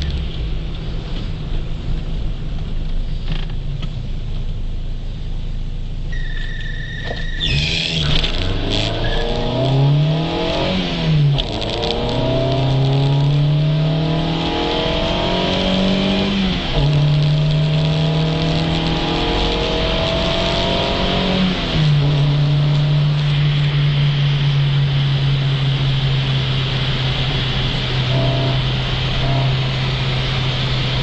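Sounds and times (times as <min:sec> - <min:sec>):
car engine accelerating hard: 0:07.5 - 0:31.0.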